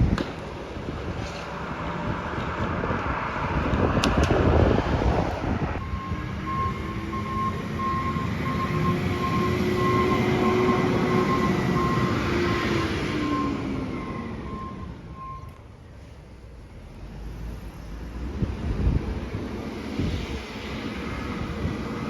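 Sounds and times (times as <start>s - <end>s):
truck reversing alarm beeping: 5.8s - 15.6s.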